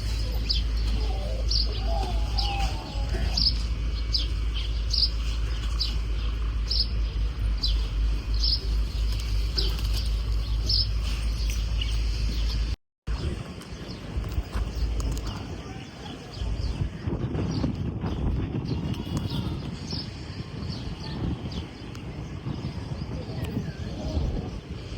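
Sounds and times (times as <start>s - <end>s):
low rumble: 0.0s - 15.8s
bird chirping: 0.0s - 16.9s.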